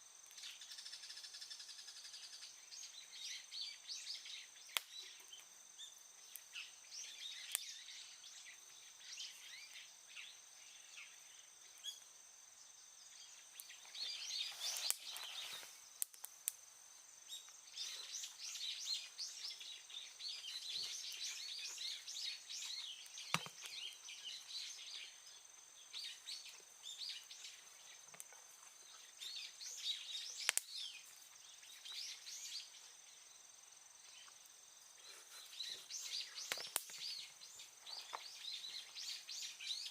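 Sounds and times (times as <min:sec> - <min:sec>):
high thin insect-like tone: 0:00.0 - 0:39.9
birds chirping: 0:00.3 - 0:16.3, 0:17.0 - 0:39.9.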